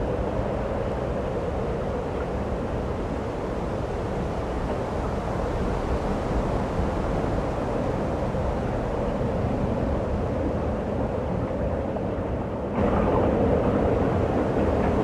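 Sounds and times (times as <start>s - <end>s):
rushing snowstorm wind: 0.0s - 15.0s
low rumble: 12.8s - 15.0s.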